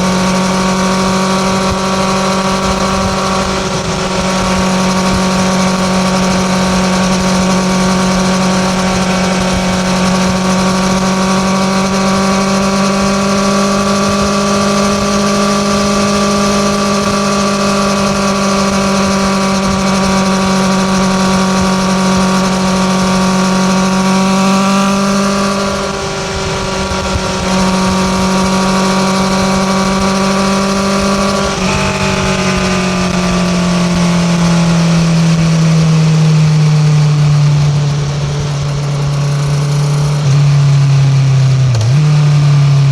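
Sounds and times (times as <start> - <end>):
motorcycle exhaust at high revs: 0.0 - 42.9.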